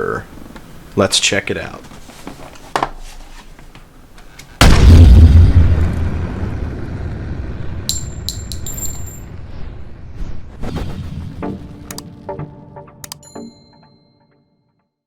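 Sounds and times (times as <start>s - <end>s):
deep cinematic boom: 4.6s - 7.9s
bright metallic clinks: 7.9s - 9.3s.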